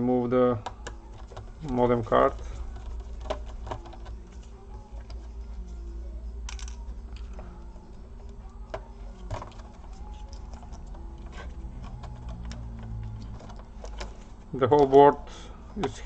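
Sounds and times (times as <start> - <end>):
steady low hum: 0.0 - 16.0
laptop parts clicking and tapping: 0.6 - 5.2, 8.3 - 15.0.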